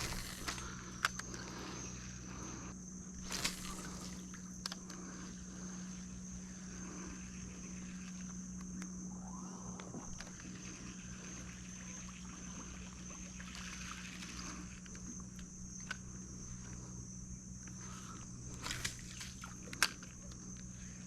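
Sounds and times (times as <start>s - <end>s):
high insect drone: 0.0s - 21.0s
low steady hum: 0.0s - 21.0s
fish splashing at surface: 3.2s - 4.4s, 18.6s - 19.6s.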